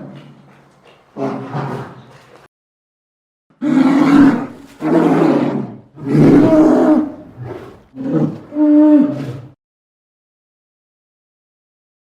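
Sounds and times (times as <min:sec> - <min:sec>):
large animal roaring: 0:03.6 - 0:09.6.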